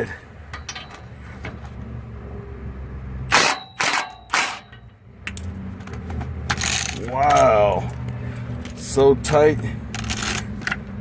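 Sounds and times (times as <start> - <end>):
sharp metallic bursts of tool: 3.3 - 4.8.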